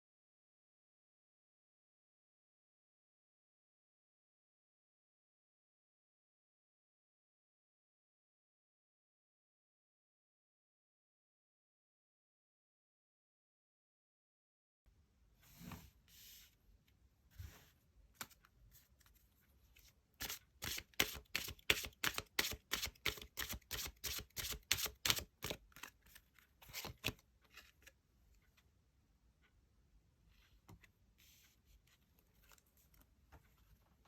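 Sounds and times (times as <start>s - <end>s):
cards slapping in shuffle: 18.2s - 19.2s, 20.2s - 27.7s
cards sliding: 20.2s - 27.9s.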